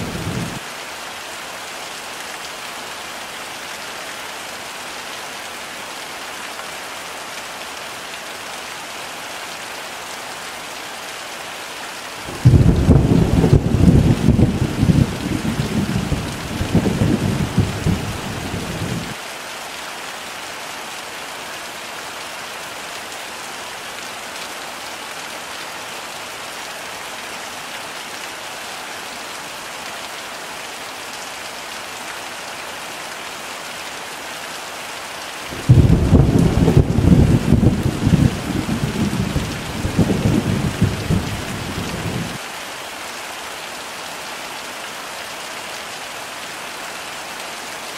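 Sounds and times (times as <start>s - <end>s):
heavy rain: 0.0s - 47.9s
rolling thunder: 12.3s - 19.2s, 35.6s - 42.4s.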